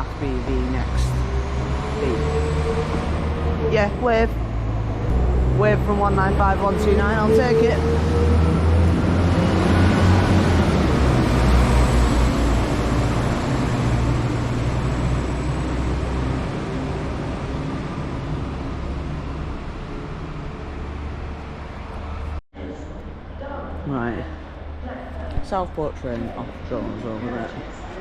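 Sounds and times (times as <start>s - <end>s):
train engine hum: 0.0s - 25.3s.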